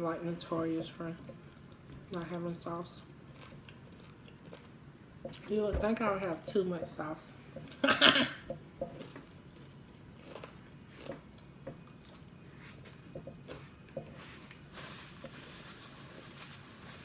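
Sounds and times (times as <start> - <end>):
chewing and mouth clicks: 3.3 - 5.4, 8.5 - 14.6
paper napkin rustling: 14.2 - 17.0.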